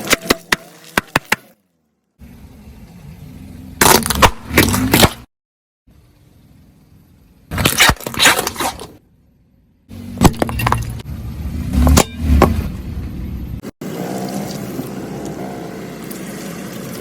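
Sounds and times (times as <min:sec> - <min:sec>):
objects crunching under car tyre: 0:03.8 - 0:05.3, 0:07.5 - 0:09.0, 0:10.0 - 0:11.1.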